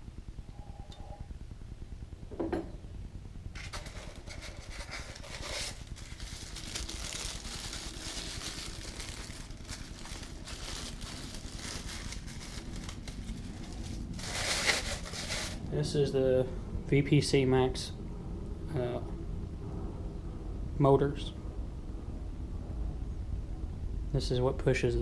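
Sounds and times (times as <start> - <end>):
low hum: 0.0 - 25.0
packaging rustling: 3.6 - 15.7.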